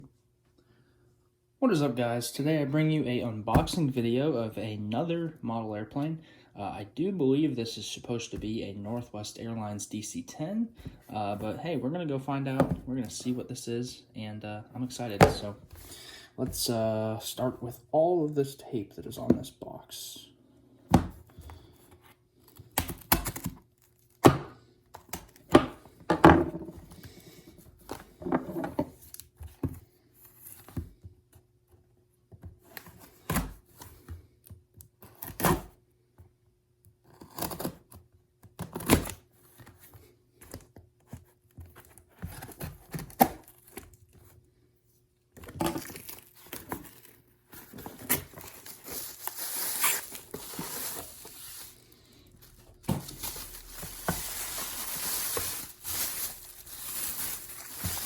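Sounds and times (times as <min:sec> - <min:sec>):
packing tape ripping off cardboard: 0:45.5 - 0:58.0.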